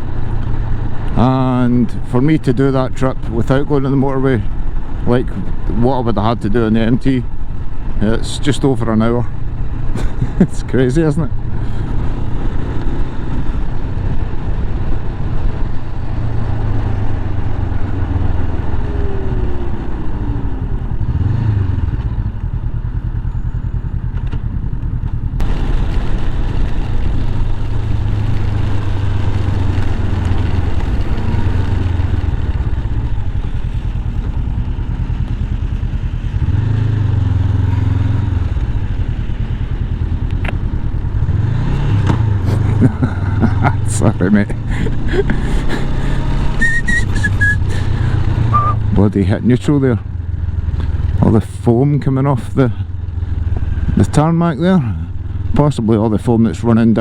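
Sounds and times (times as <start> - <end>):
motorcycle engine running: 0.0 - 57.0
wind rushing over microphone: 11.2 - 23.2.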